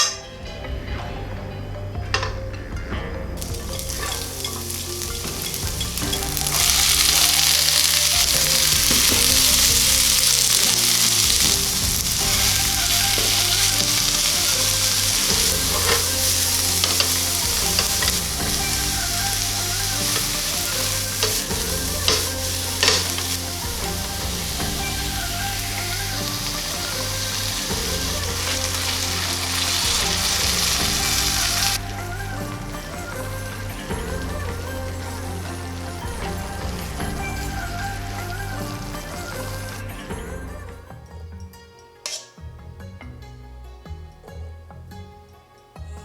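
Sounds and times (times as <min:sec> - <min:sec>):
food sizzling in a frying pan: 0:03.4 - 0:39.8.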